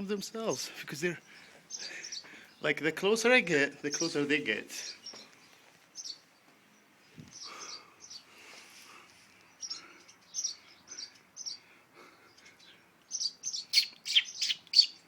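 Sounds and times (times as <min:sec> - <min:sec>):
birds giving alarm calls: 0:12.6 - 0:15.0.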